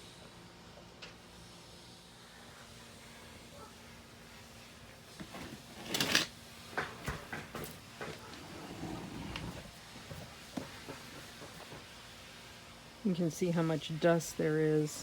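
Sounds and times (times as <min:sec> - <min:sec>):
objects knocking and clattering: 0:05.2 - 0:08.8.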